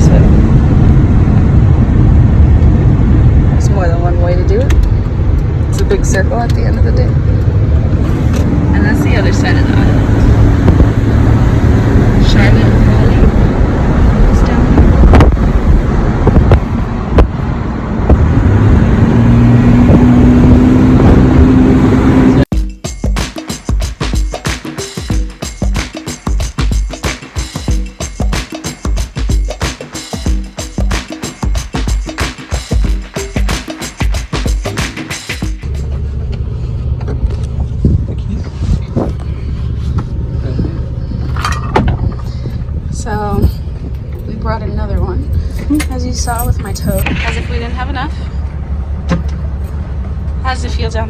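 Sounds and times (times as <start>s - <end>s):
car engine and tyre rumble: 0.0s - 22.5s, 35.6s - 51.0s
thumps and rattles from bumpy road: 4.5s - 18.6s, 35.4s - 48.4s, 49.0s - 51.0s.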